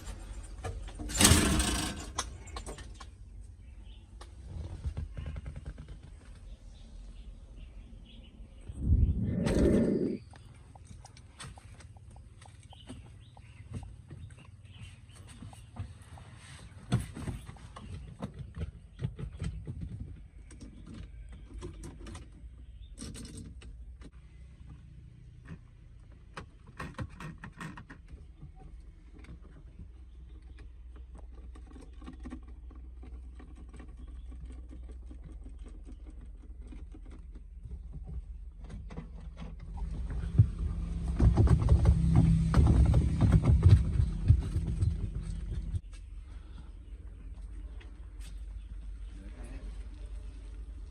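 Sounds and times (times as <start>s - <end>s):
low mechanical hum: 0.0s - 18.2s.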